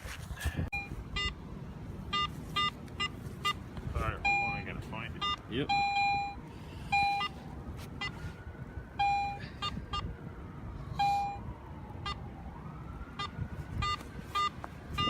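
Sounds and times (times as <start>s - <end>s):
wind rumble on microphone: 0.0s - 1.3s, 7.1s - 15.0s
metal detector long low beeps: 0.7s - 1.4s, 2.1s - 3.6s, 4.2s - 7.4s, 9.0s - 10.1s, 11.0s - 12.2s, 13.2s - 15.0s
metal detector short high beeps: 4.2s - 4.6s.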